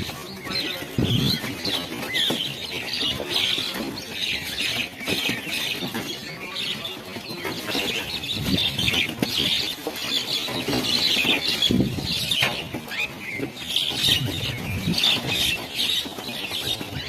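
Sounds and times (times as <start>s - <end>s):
flock of small birds calling: 0.0s - 17.0s.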